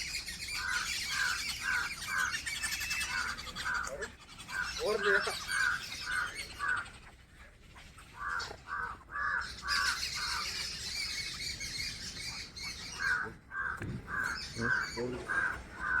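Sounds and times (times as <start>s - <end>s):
crow cawing: 0.5s - 7.0s, 8.2s - 10.6s, 12.8s - 16.0s.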